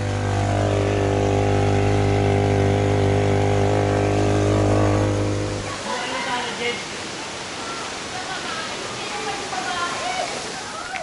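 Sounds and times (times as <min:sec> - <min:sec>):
engine running steadily: 0:00.0 - 0:05.7.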